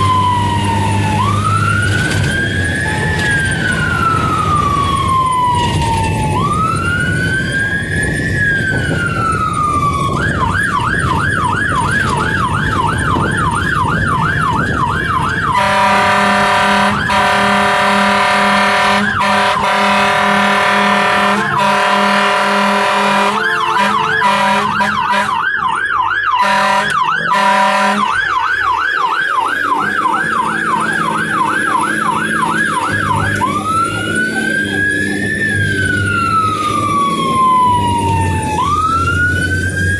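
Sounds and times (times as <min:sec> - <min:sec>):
fire engine siren: 0:00.0 - 0:39.9
truck engine rumble: 0:00.0 - 0:39.9
horn blast: 0:15.5 - 0:25.6, 0:26.3 - 0:28.2.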